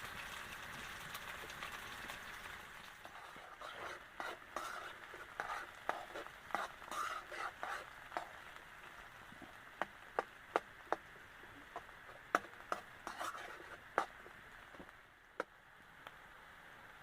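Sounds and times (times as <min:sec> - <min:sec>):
food sizzling in a pan: 0:00.0 - 0:14.9
utensil scraping a pan: 0:03.0 - 0:08.4, 0:11.7 - 0:14.3.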